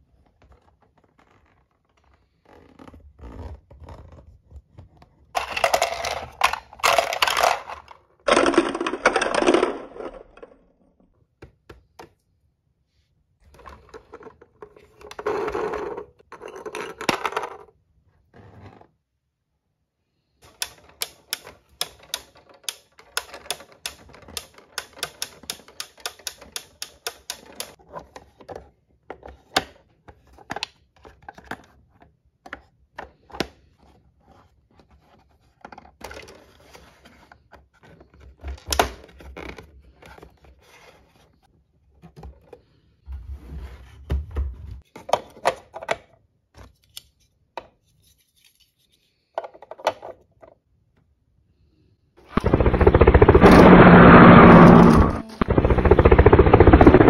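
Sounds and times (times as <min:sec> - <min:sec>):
plastic toy parts clicking: 0:05.4 - 0:10.6, 0:20.4 - 0:27.8
plastic clatter: 0:05.4 - 0:10.8.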